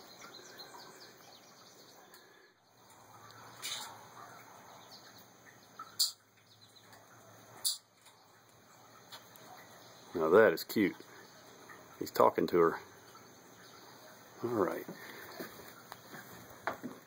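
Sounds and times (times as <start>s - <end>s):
faint bird chirping: 0.0s - 16.2s
short sharp hissing: 3.6s - 3.9s.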